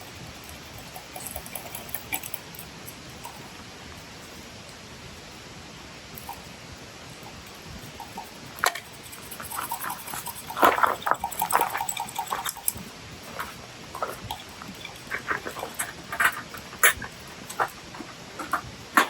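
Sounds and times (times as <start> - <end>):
campfire crackling and popping: 5.8 - 19.0.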